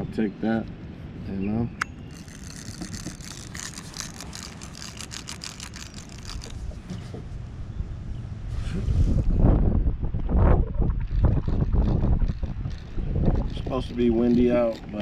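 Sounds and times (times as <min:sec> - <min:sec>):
small irregular clicks: 0:01.8 - 0:06.6, 0:11.0 - 0:15.0
wind buffeting microphone: 0:02.0 - 0:15.0.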